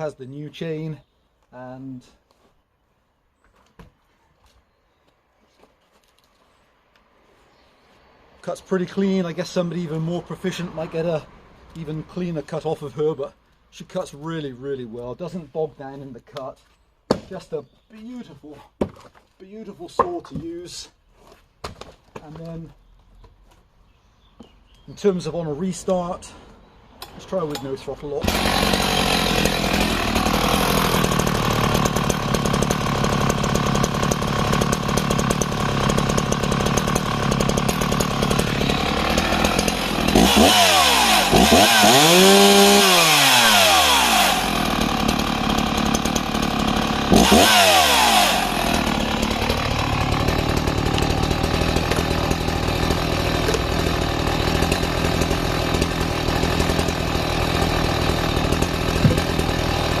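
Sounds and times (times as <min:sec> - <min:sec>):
chainsaw idling and revving: 0:08.4 - 0:13.1, 0:27.0 - 1:00.0.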